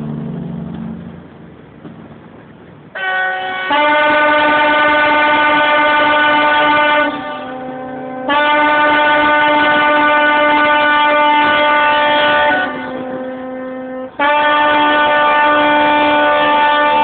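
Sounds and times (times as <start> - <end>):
ship's horn blasts: 2.9 - 17.0.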